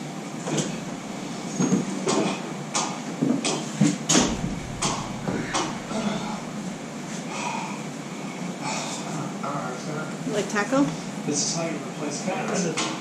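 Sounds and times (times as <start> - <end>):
irregular knocks and clatters: 4.1 - 7.3.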